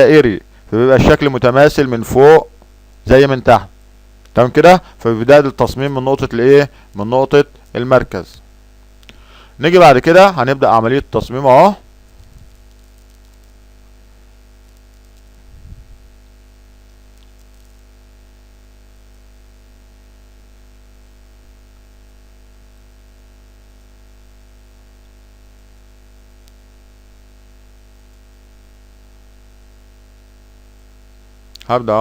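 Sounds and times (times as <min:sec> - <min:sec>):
electrical hum with hiss: 0:00.0 - 0:32.0.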